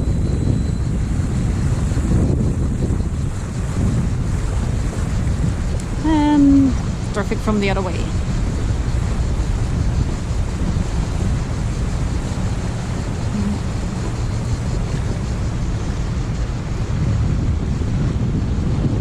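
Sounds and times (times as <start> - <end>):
water noise: 0.0 - 19.0
wind buffeting microphone: 0.0 - 19.0.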